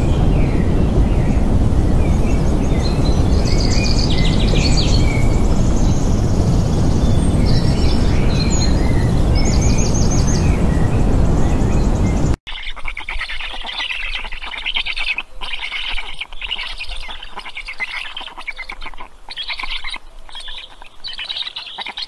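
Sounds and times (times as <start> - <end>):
steady rushing noise: 0.0 - 12.4
birds chirping and trilling: 0.0 - 22.0.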